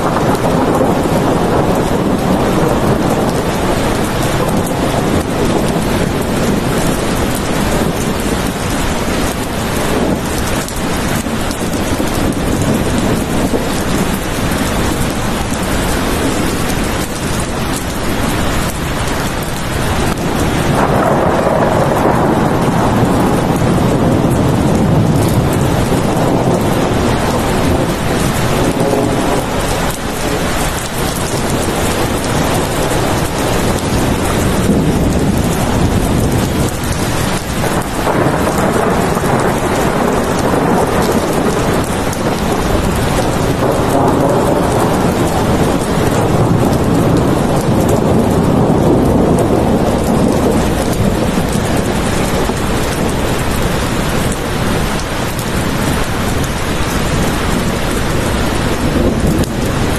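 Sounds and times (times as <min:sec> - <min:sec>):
heavy rain falling: 0:00.0 - 0:59.9
rolling thunder: 0:00.0 - 0:59.9.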